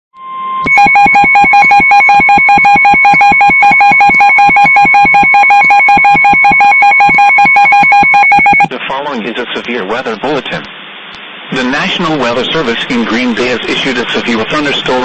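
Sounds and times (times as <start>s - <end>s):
high and low electronic beeps: 0.6s - 8.7s
steady alarm tone: 0.6s - 8.7s.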